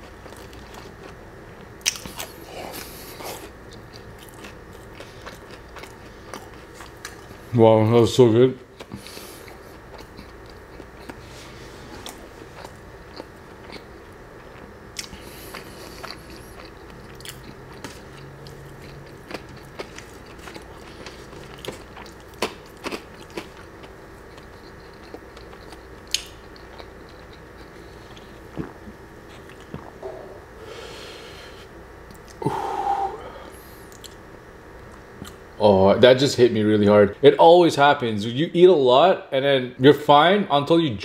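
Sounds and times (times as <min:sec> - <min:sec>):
chewing and mouth sounds: 0:00.0 - 0:07.5, 0:08.8 - 0:11.3, 0:11.9 - 0:30.3, 0:33.8 - 0:35.5.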